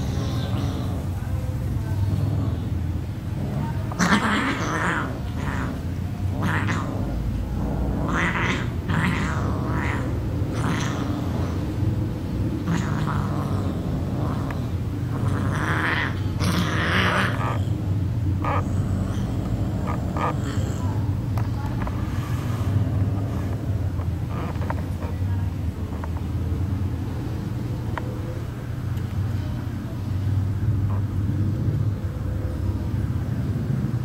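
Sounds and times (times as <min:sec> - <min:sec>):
steady low hum: 0:00.0 - 0:34.0
cats hissing and yowling: 0:03.5 - 0:20.9.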